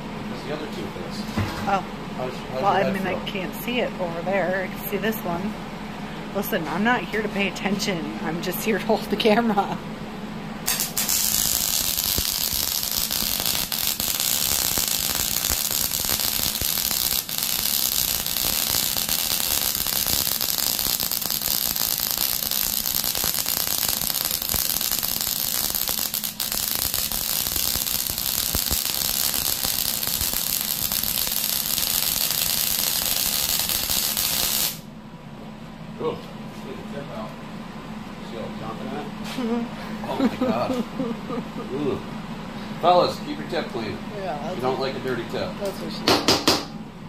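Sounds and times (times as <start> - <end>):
welder arc crackling: 10.7 - 34.9.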